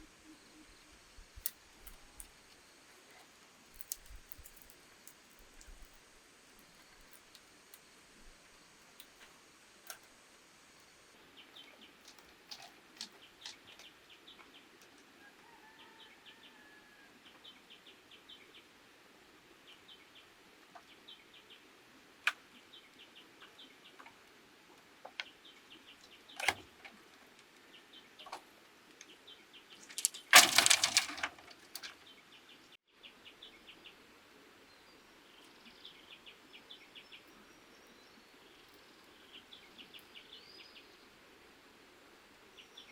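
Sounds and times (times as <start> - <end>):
noisy clatter: 29.9 - 31.9.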